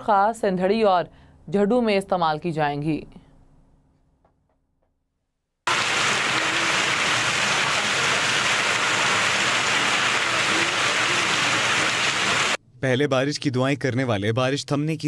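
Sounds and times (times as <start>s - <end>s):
heavy rain on flooded street: 5.7s - 12.6s.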